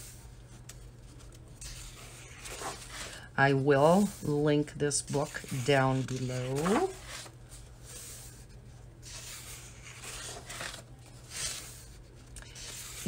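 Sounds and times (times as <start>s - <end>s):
low steady hum: 0.0s - 13.0s
paper pages rustling: 0.4s - 3.2s, 5.0s - 13.0s.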